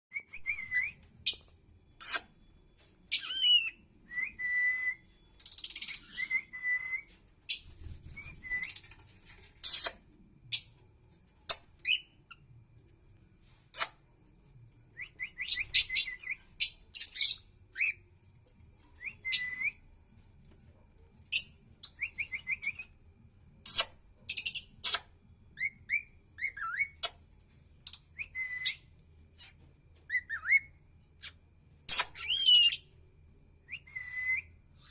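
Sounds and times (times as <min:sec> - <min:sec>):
cockatiel whistling and chirping: 0:03.1 - 0:08.9, 0:15.0 - 0:18.0, 0:19.0 - 0:19.8, 0:25.6 - 0:27.1, 0:27.9 - 0:32.9, 0:33.7 - 0:34.9.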